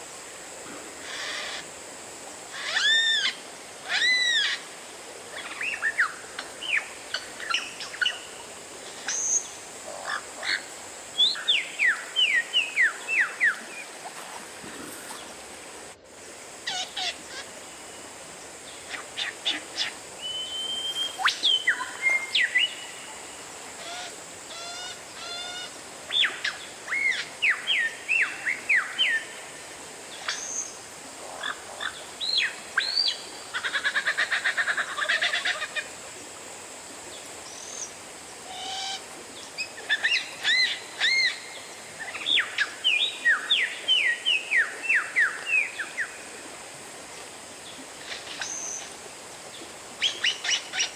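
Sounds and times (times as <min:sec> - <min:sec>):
background hiss: 0:00.0 - 0:50.9
bird whistling song: 0:20.2 - 0:22.8.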